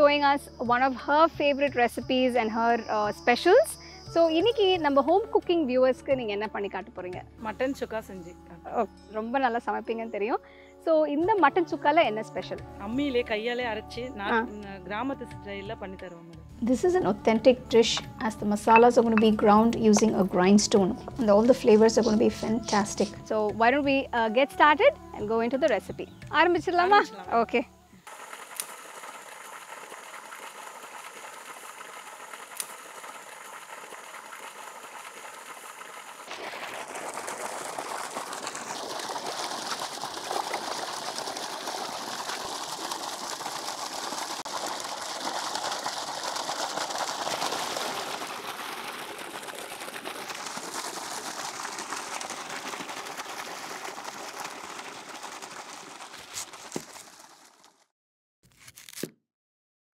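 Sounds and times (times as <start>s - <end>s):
water splashing into steel bowl: 17.6s - 22.7s, 28.1s - 57.3s
water gushing from a pipe: 17.8s - 23.3s, 28.0s - 57.8s.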